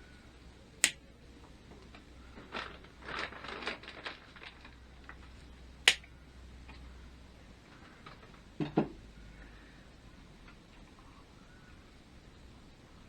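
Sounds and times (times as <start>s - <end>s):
steady low hum: 0.0s - 13.0s
sharp clicks: 0.8s - 1.0s, 5.9s - 6.1s.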